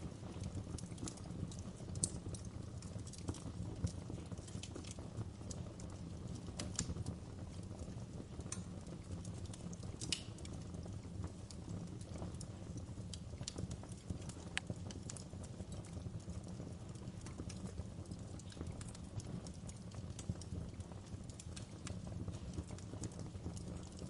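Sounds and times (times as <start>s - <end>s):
wood fire crackling and snapping: 0.0s - 24.0s.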